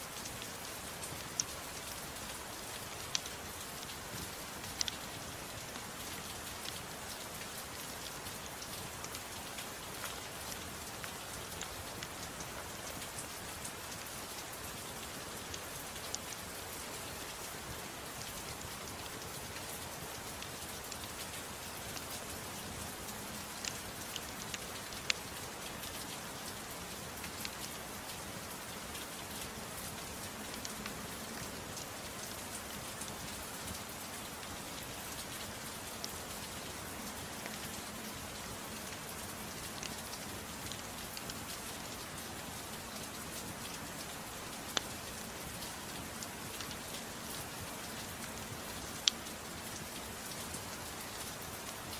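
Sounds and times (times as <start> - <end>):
gentle rain falling: 0.0 - 51.9.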